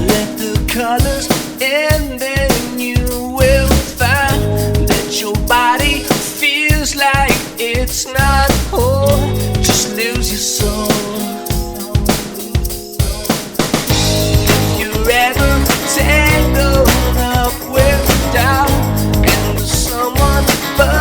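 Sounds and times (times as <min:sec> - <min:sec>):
drum kit beat: 0:00.0 - 0:21.0
psychedelic rock song: 0:00.0 - 0:21.0
bending lead guitar line: 0:08.2 - 0:11.5, 0:13.1 - 0:21.0.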